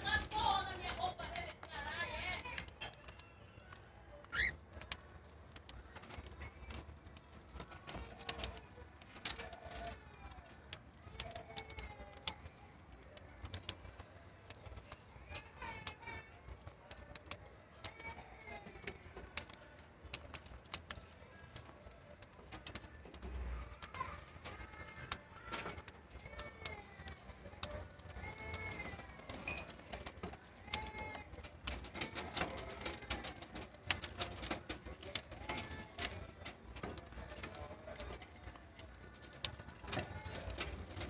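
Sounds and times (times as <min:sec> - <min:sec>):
cockatiels chirping and whistling: 0:04.2 - 0:04.6.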